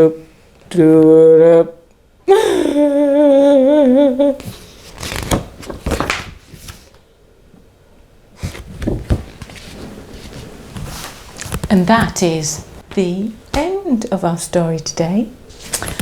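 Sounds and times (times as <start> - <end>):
book pages rustling: 4.4 - 7.0, 8.4 - 13.1.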